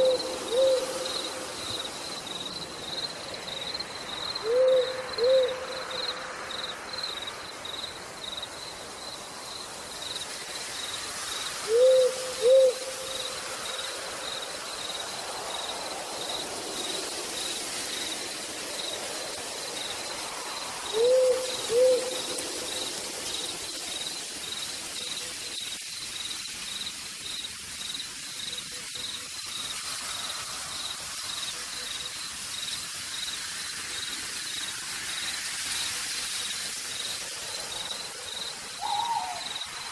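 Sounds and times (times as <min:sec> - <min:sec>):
owl hooting: 0:00.0 - 0:01.5, 0:04.4 - 0:05.9, 0:11.7 - 0:13.2, 0:20.9 - 0:22.3, 0:38.8 - 0:39.6
insect chirping: 0:00.0 - 0:39.9
steady rain falling: 0:00.0 - 0:39.9.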